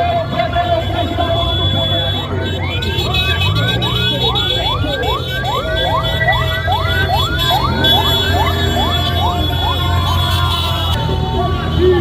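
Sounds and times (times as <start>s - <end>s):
low vehicle engine rumble: 0.0s - 12.0s
electronic siren yelping: 1.4s - 11.0s.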